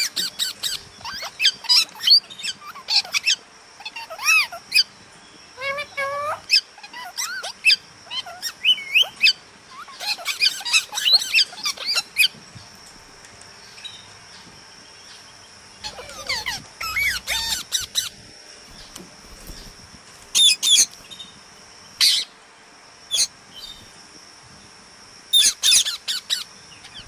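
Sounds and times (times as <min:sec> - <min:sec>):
parrot chirping and squeaking: 0:00.0 - 0:04.9, 0:05.6 - 0:12.4, 0:15.8 - 0:19.7, 0:20.3 - 0:20.9, 0:22.0 - 0:22.3, 0:23.1 - 0:23.8, 0:25.3 - 0:27.0.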